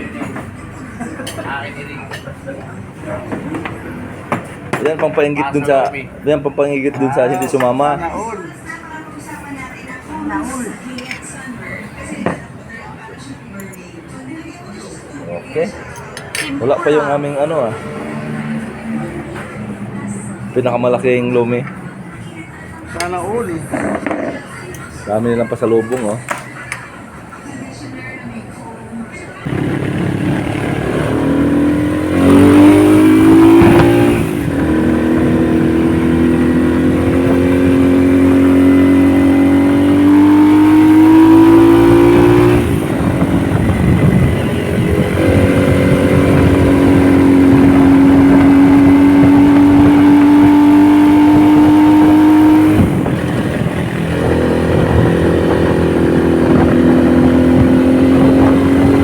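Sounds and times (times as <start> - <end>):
motorcycle engine accelerating: 29.4 - 59.0.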